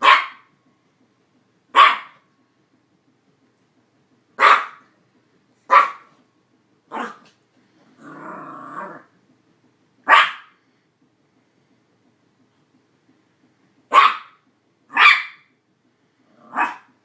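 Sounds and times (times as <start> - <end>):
dog barking: 0.0 - 0.5, 1.8 - 2.2, 4.4 - 4.9, 5.7 - 6.1, 6.9 - 7.2, 10.1 - 10.6, 13.9 - 15.5, 16.4 - 16.9
dog growling: 7.9 - 9.1, 16.3 - 16.8.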